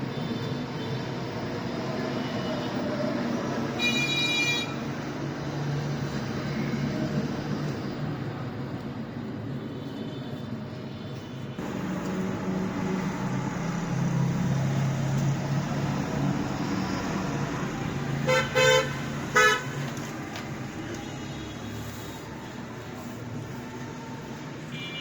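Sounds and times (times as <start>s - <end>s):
traffic drone: 0.0s - 25.0s
vehicle horn tooting: 3.8s - 4.8s, 18.2s - 19.8s, 24.7s - 25.0s.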